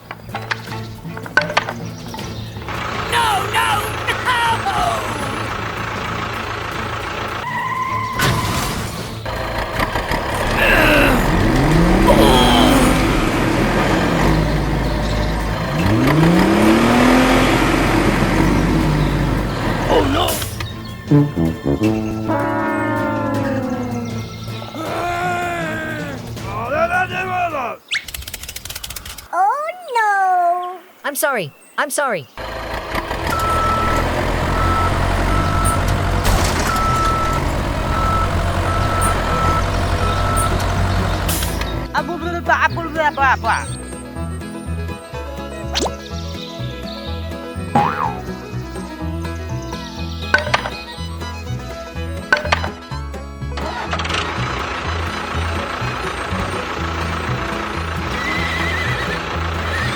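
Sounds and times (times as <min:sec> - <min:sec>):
miniature tractor engine revving: 0:02.6 - 0:08.3, 0:09.2 - 0:20.8, 0:32.4 - 0:41.9, 0:53.4 - 0:59.9
sharp clicks: 0:27.9 - 0:29.3
reverse warning beeps: 0:33.3 - 0:36.1, 0:36.7 - 0:40.7.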